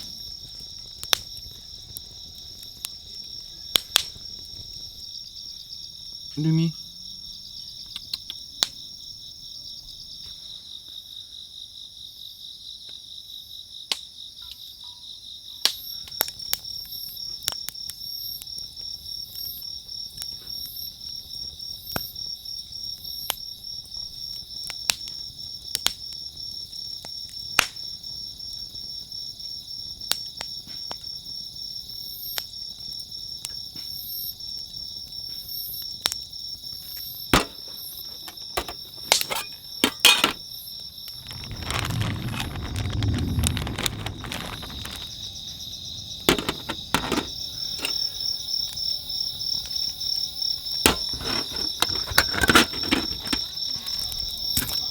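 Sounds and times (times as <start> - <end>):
insects chirping in a trill: 0.0 - 54.9
sharp clicks and knocks: 46.3 - 48.0.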